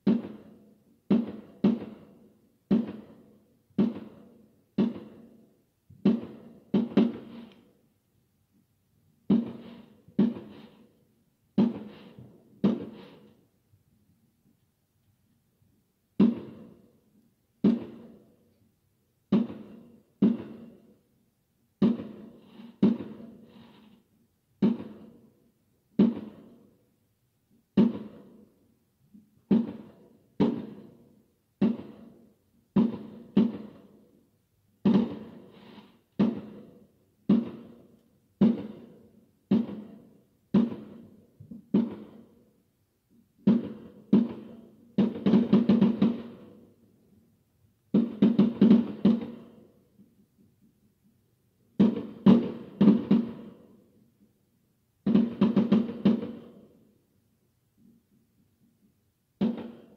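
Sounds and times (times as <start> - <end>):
fireworks bangs echoing: 0.0 - 3.2, 3.8 - 5.4, 6.0 - 7.6, 9.3 - 10.9, 11.6 - 13.3, 16.2 - 16.8, 17.6 - 18.2, 19.3 - 20.9, 21.8 - 24.0, 24.6 - 25.2, 26.0 - 26.6, 27.8 - 28.4, 29.5 - 31.0, 31.6 - 32.2, 32.8 - 34.0, 34.8 - 42.3, 43.4 - 46.6, 48.0 - 49.6, 51.8 - 53.7, 55.1 - 56.6, 59.4 - 59.9.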